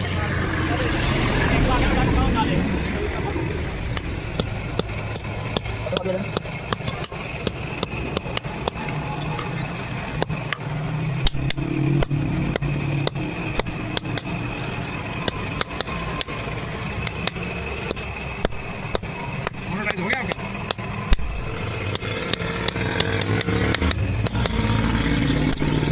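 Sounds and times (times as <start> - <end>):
low hum: 0.0 - 25.9.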